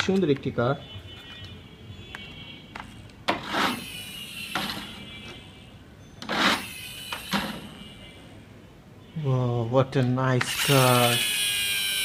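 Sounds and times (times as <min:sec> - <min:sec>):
toy gears whirring rattle: 0:10.4 - 0:12.0.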